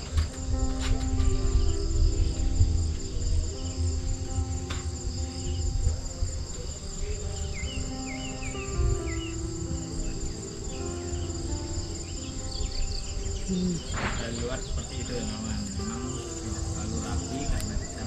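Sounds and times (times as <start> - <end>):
low rumble: 0.0 - 8.0
insects chorus: 0.0 - 18.0.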